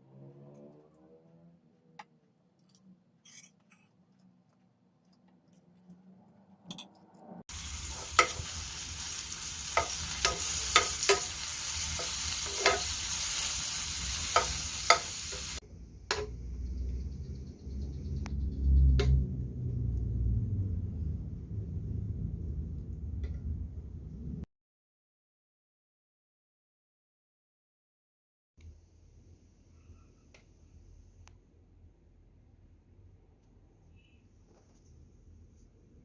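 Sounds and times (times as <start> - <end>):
food sizzling in hot oil: 7.5 - 15.6.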